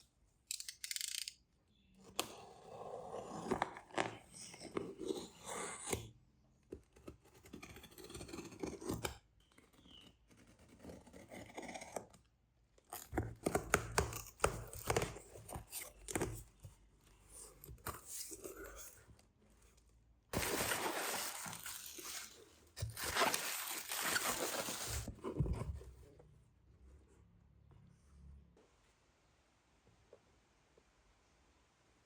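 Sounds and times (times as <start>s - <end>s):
cardboard scraping and rustling: 20.4s - 26.1s.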